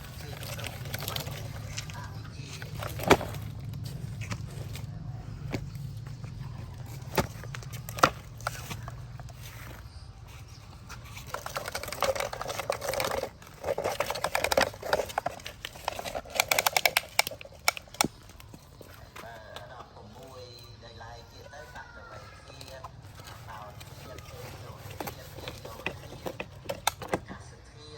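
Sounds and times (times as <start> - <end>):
toy vehicle motor hum: 0.0 - 20.1
quick clattering and scraping: 0.0 - 20.4, 21.4 - 27.4.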